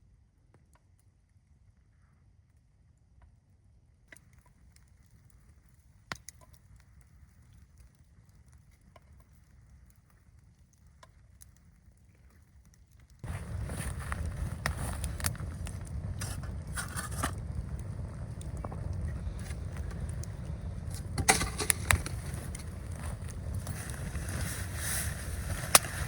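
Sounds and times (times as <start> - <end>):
campfire crackling: 4.0 - 26.0
low rumble: 13.2 - 26.0
loud scraping: 16.2 - 17.4, 21.0 - 22.8.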